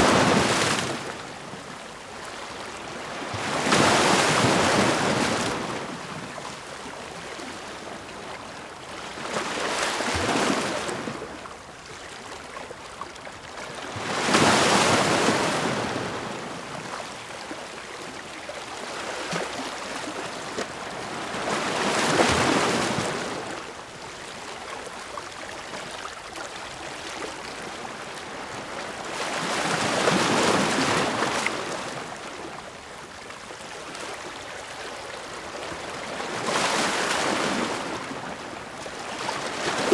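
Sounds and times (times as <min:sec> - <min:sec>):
waves crashing against rocks: 0:00.0 - 0:00.9.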